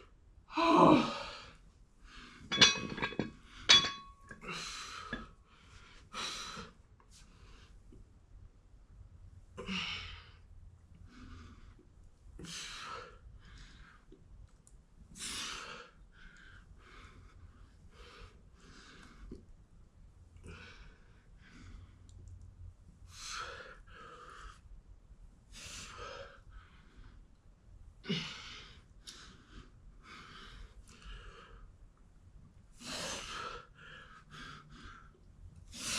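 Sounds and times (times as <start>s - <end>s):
person breathing hard: 32.8s - 35.9s.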